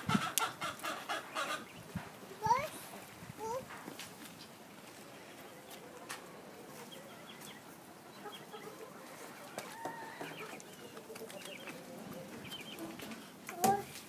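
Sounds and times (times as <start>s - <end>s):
hens clucking: 0.0s - 2.6s, 4.4s - 13.4s
bird calls and chirps: 6.8s - 13.3s.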